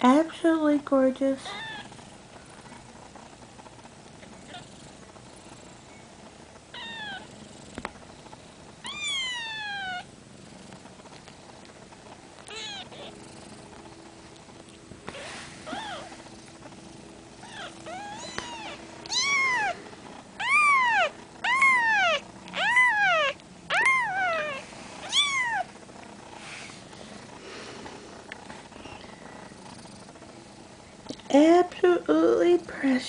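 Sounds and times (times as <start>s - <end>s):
kitten mewing: 6.7s - 7.3s, 8.8s - 10.1s, 12.5s - 13.2s, 15.1s - 16.2s, 17.4s - 19.8s, 20.4s - 25.7s.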